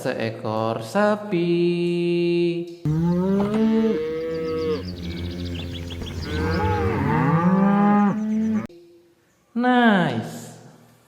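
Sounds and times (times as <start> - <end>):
cow mooing: 2.9 - 8.7.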